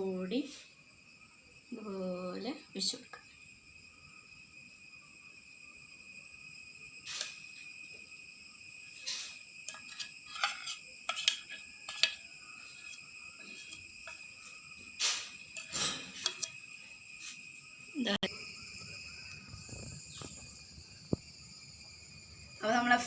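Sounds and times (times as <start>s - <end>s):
high-pitched insect chirring: 0.0s - 23.0s.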